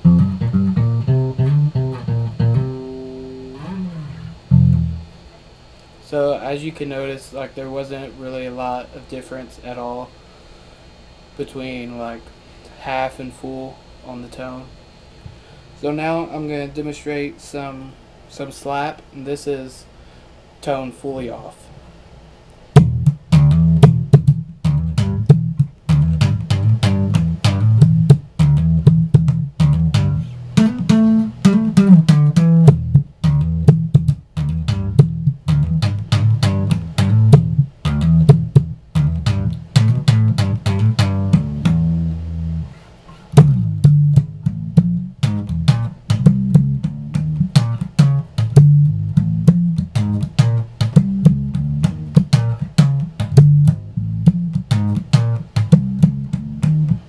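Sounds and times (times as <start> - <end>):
slap bass guitar: 0.0 - 5.3, 22.7 - 57.0.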